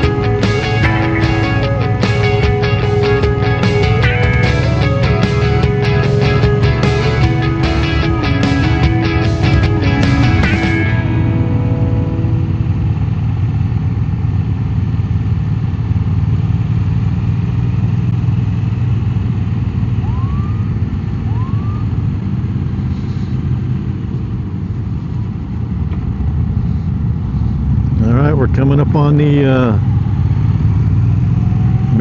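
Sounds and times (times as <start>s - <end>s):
motorcycle engine running: 0.0s - 32.0s
siren whoops: 19.9s - 22.2s.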